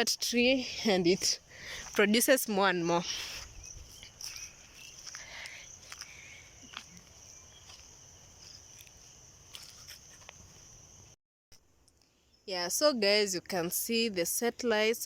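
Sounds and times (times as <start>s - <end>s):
high-pitched insect chirring: 1.9s - 11.1s.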